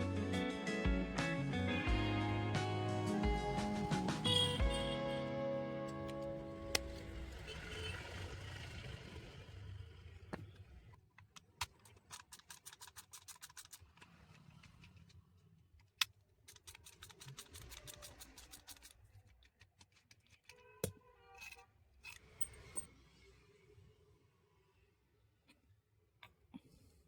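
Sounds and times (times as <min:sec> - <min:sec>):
rapid small clicks: 0:11.2 - 0:15.2, 0:15.8 - 0:20.4.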